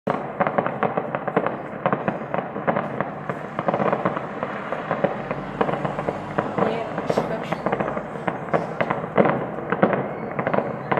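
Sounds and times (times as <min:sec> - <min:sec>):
fireworks popping and banging: 0:00.1 - 0:10.9.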